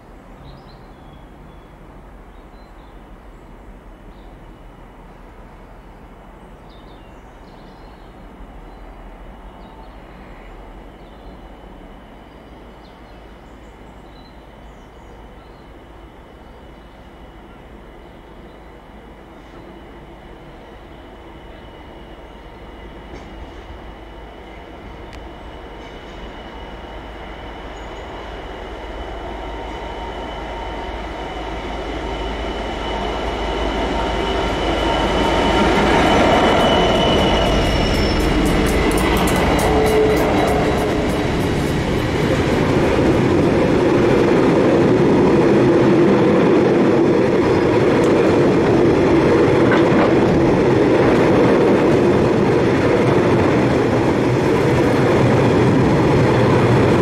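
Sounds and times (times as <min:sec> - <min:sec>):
diesel locomotive engines: 0:00.0 - 0:57.0
high wheel squeal: 0:32.2 - 0:43.6.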